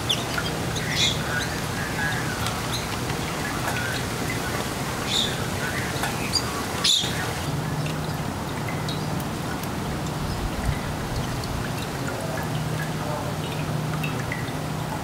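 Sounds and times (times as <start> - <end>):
small birds chirping: 0.0 - 14.6
water trickling: 0.0 - 15.0.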